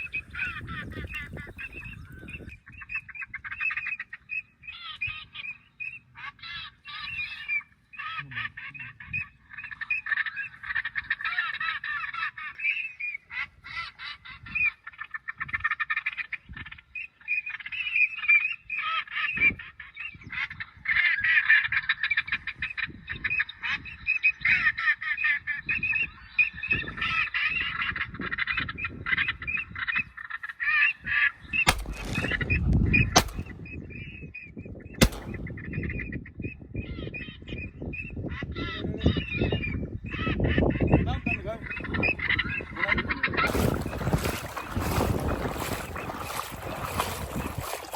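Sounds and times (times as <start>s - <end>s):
shotgun shots: 31.7s - 32.6s, 33.2s - 33.7s, 35.0s - 35.8s.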